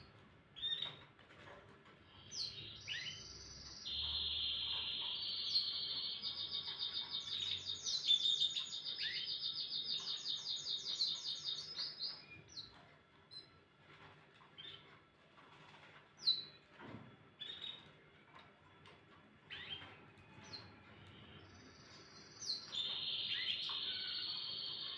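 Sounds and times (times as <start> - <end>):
bird chirps: 2.0 - 13.6, 19.5 - 24.9
canary trilling: 2.1 - 16.6, 17.4 - 18.0, 18.8 - 24.9.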